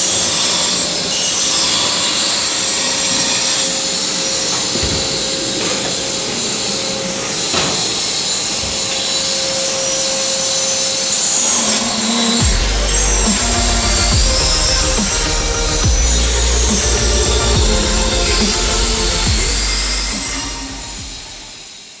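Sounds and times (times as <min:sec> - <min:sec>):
power tool cutting metal: 0:00.0 - 0:22.0
constant hum: 0:11.9 - 0:21.7.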